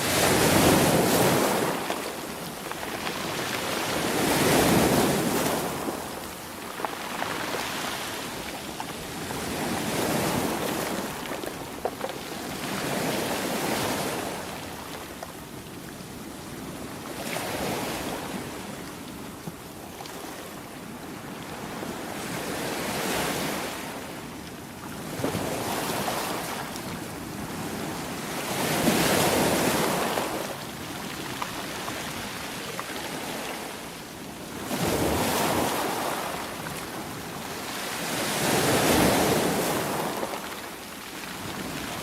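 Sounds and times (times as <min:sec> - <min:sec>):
sea waves breaking: 0:00.0 - 0:14.8.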